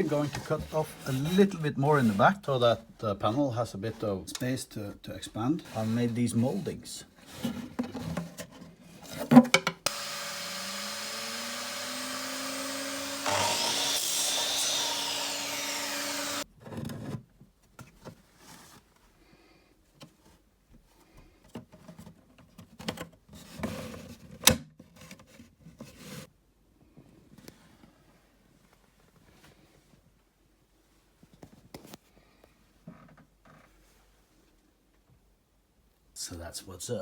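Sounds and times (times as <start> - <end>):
electric saw cutting wood: 9.9 - 16.4.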